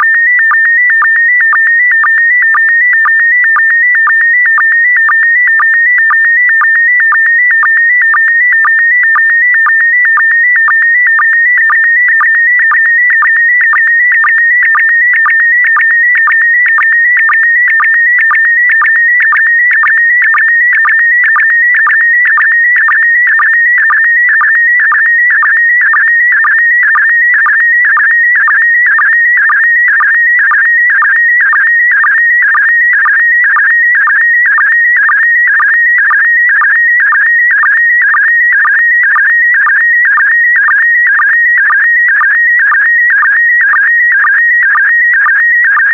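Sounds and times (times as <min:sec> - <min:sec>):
warbling electronic image signal tone: 0:00.0 - 0:02.6.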